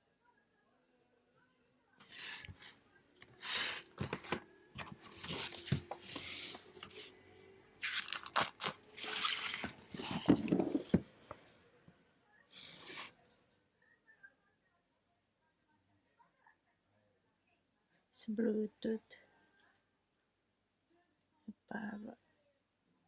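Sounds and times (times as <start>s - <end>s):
packaging tearing and rustling: 7.8s - 10.3s.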